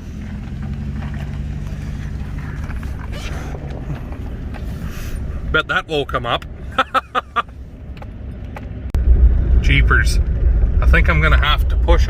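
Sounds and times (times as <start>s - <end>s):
mechanical creaking and rattling: 0.0s - 6.6s
vehicle engine humming: 0.0s - 12.0s.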